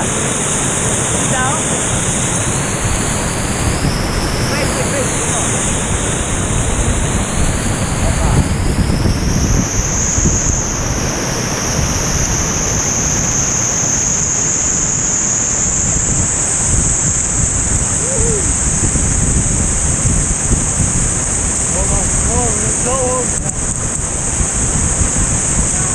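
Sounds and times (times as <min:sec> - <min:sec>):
waterfall rushing: 0:00.0 - 0:25.9
wind buffeting microphone: 0:00.0 - 0:25.9.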